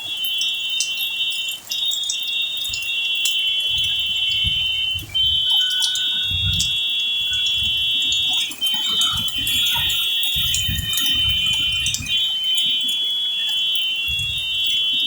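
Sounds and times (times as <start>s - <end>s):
heavy rain: 0.0s - 15.0s
high-pitched ringing tones: 0.0s - 15.0s
raindrops ticking: 0.0s - 15.0s.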